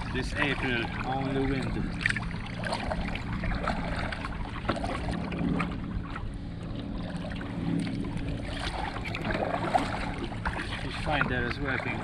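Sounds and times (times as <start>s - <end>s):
water lapping against kayak hull: 0.0s - 12.0s.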